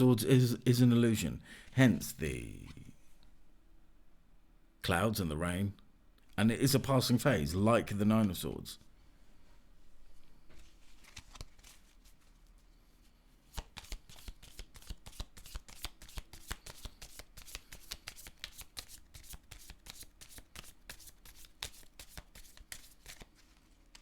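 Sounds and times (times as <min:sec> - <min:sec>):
cards being shuffled: 0:10.5 - 0:12.6, 0:13.5 - 0:24.0.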